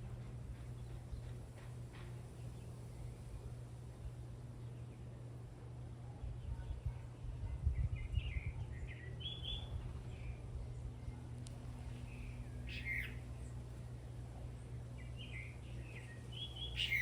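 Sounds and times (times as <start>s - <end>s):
low background rumble: 0.0s - 17.0s
wind buffeting microphone: 6.4s - 10.7s
bird chirping: 8.0s - 10.4s, 12.0s - 13.6s, 15.0s - 17.0s.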